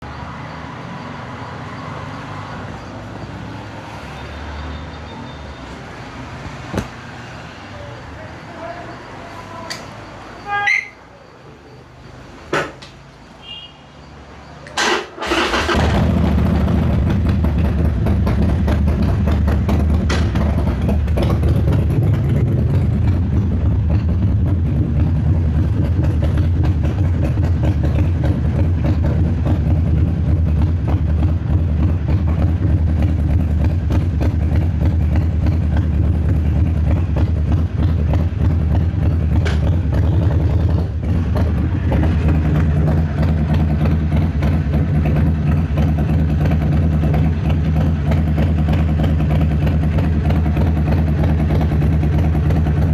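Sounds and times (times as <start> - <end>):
click: 9.7 - 9.9
motorcycle engine cranking and idling: 14.6 - 52.9.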